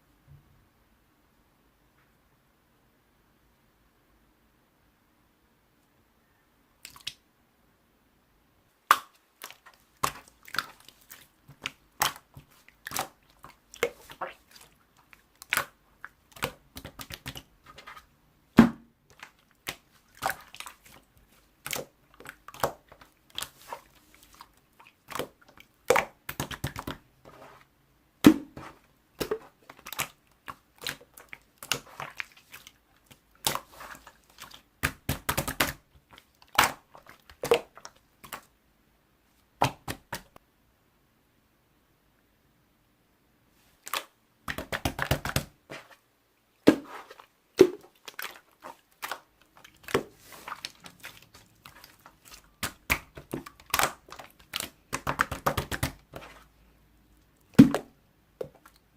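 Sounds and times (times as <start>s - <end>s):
crackling and crunching: 46.7s - 55.3s.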